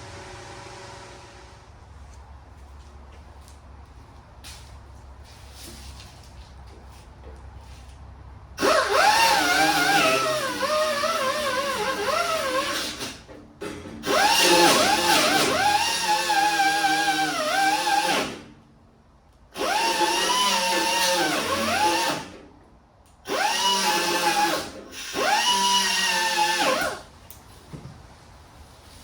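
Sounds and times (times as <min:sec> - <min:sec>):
power tool grinding metal: 0:08.6 - 0:13.2, 0:14.0 - 0:18.4.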